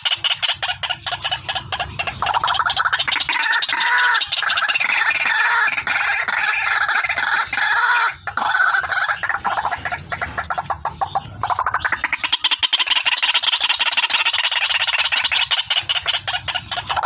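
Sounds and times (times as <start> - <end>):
waterhen calling: 0.0 - 17.0.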